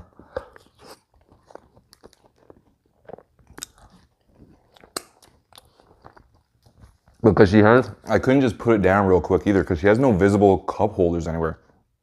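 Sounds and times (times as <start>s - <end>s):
chewing food: 0.0s - 8.2s.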